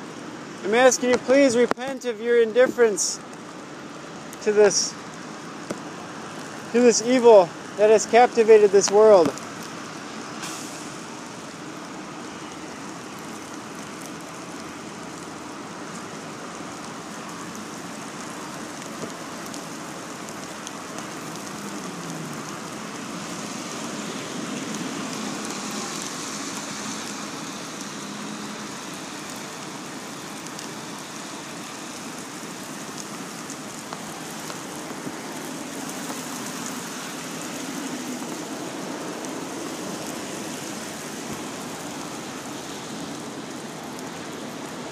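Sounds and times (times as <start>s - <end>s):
steady rain falling: 0.0s - 44.9s.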